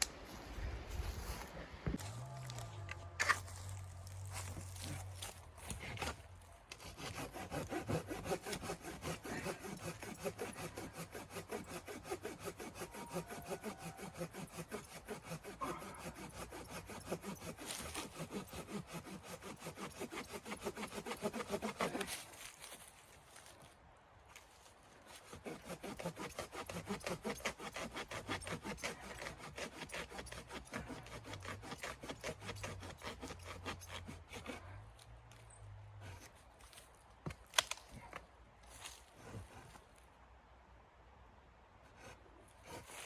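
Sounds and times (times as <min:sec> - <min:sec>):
hand saw cutting wood: 0:03.2 - 0:23.5, 0:25.1 - 0:35.1, 0:36.0 - 0:36.8, 0:41.9 - 0:43.0.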